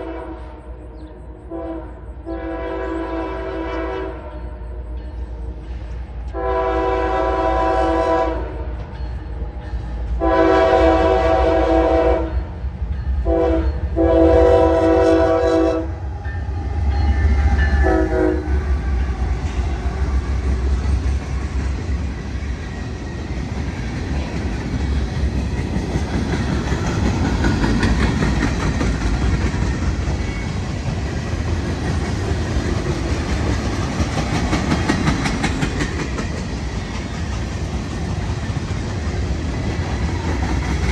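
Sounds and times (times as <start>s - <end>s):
locomotive horn: 0.0s - 4.9s, 6.3s - 8.9s, 10.2s - 12.4s, 13.2s - 16.9s, 17.6s - 19.7s
train wheels rattling on rails: 3.7s - 40.9s.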